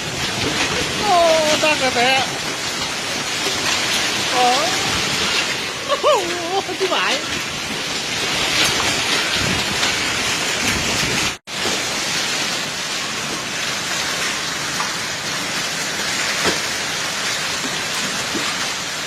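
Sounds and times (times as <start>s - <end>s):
heavy rain and hail: 0.0s - 19.0s.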